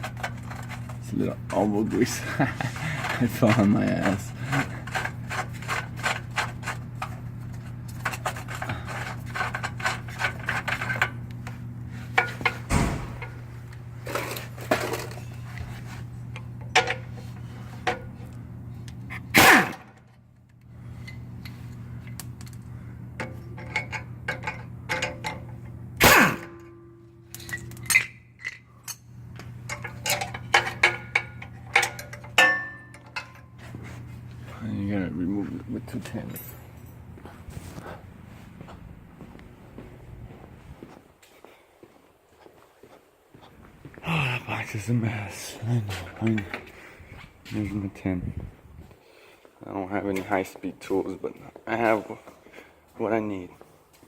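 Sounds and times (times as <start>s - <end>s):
steady low hum: 0.0s - 54.0s
loud knocks on metal: 12.7s - 13.4s.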